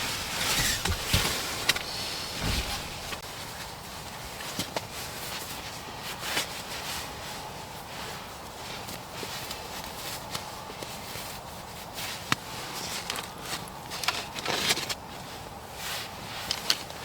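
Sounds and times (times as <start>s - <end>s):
packaging rustling: 0.0s - 3.2s.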